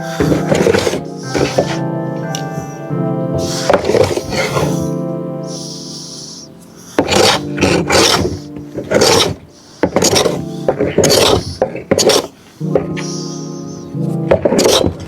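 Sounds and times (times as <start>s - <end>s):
hand tool rasping on wood: 0.1s - 1.8s, 6.9s - 15.0s.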